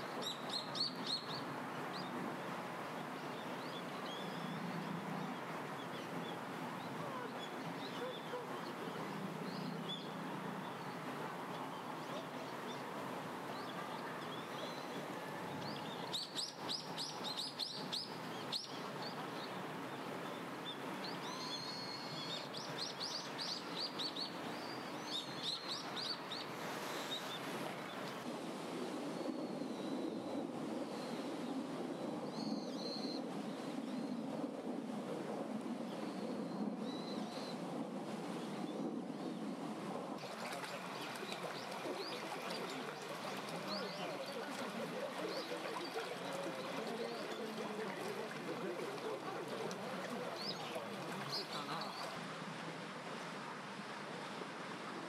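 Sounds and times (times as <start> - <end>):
small songbirds chirping: 0.0 - 2.3, 3.0 - 28.2, 40.4 - 52.2
outdoor background hiss: 0.0 - 30.0, 37.8 - 55.0.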